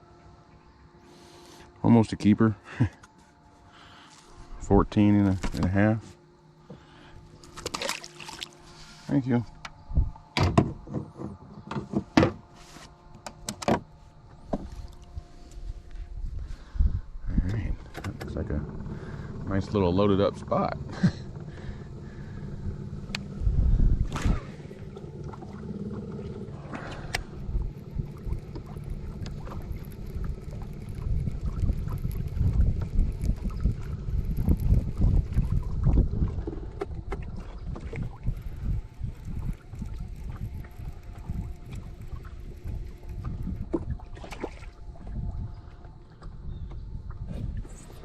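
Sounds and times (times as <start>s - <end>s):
water against boat hull: 6.6s - 9.0s, 10.3s - 16.0s, 17.8s - 48.0s
fish splash: 7.5s - 8.6s
wind buffeting microphone: 9.8s - 10.9s, 14.7s - 20.9s, 21.5s - 48.0s.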